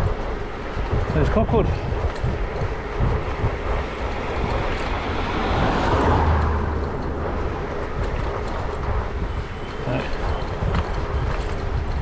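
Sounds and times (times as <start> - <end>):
bicycle road noise: 0.0 - 12.0
wind rushing over microphone: 0.0 - 12.0.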